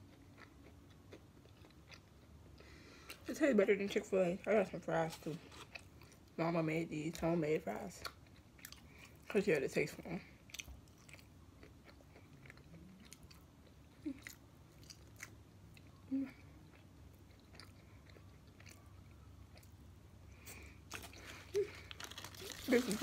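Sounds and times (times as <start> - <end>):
person chewing fries: 0.0 - 3.2, 5.5 - 6.4, 7.9 - 9.3, 10.4 - 23.0.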